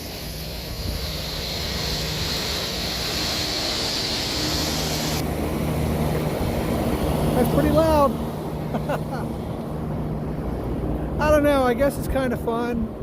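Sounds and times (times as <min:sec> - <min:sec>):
hissing rush: 0:00.0 - 0:10.2
low mechanical hum: 0:00.0 - 0:13.0.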